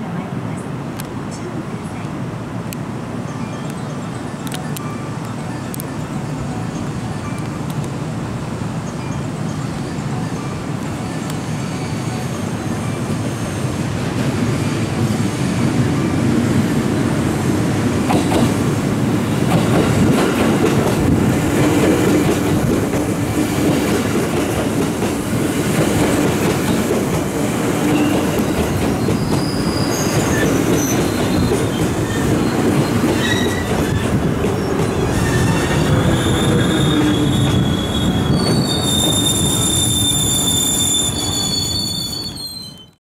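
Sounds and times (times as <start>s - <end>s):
train wheel and rail rumble: 0.0s - 43.0s
high-pitched wheel flange squeals: 11.1s - 13.8s, 29.0s - 43.0s.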